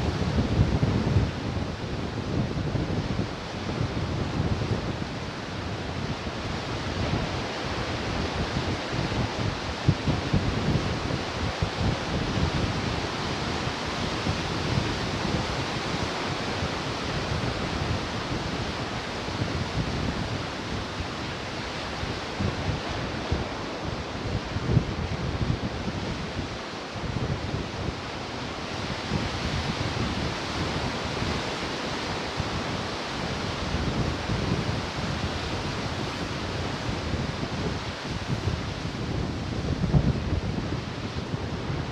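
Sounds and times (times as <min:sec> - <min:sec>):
ocean surf washing on shore: 0:00.0 - 0:41.9
wind gusting on microphone: 0:00.0 - 0:41.9.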